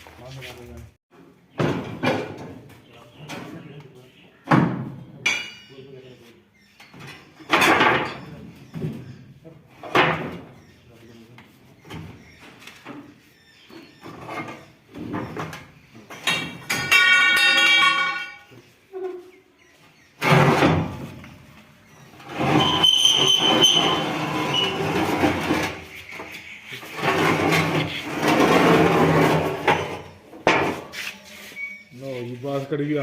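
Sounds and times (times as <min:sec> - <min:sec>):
metal dragging and clatter: 0:22.2 - 0:26.0, 0:26.8 - 0:30.2
steady metal screech: 0:22.3 - 0:25.6.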